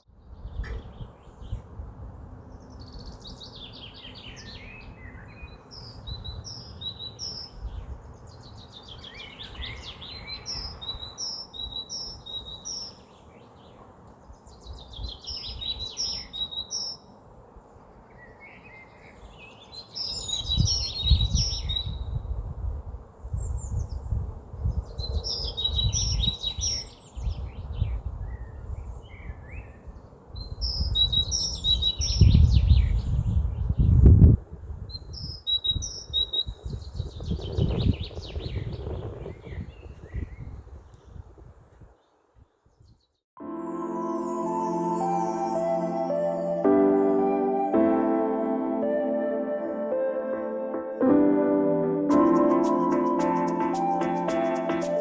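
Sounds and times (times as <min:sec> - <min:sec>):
wind rumble on microphone: 0:00.0 - 0:12.9, 0:14.2 - 0:16.5, 0:20.0 - 0:43.1
songbird singing: 0:00.0 - 0:50.4.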